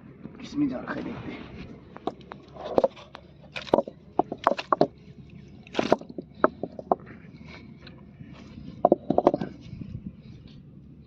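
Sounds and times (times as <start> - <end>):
digging in wet mud: 2.5 - 8.8.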